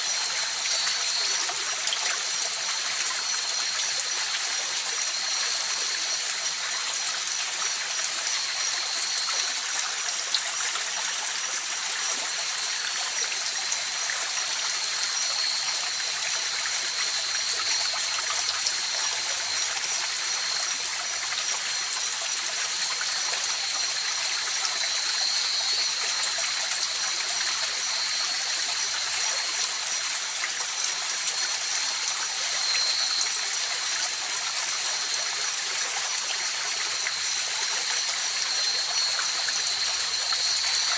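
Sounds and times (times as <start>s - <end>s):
river water flowing: 14.5s - 40.9s.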